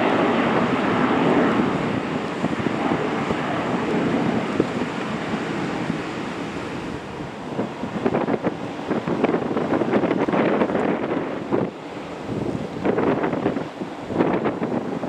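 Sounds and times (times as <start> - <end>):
gusty wind thumps: 0.0 - 15.0
wind buffeting microphone: 0.0 - 15.0.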